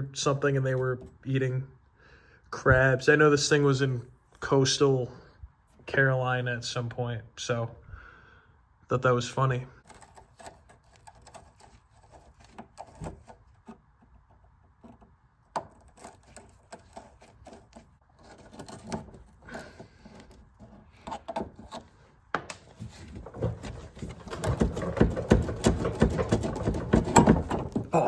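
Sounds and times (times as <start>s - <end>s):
hand tools clicking and knocking: 14.7s - 28.0s.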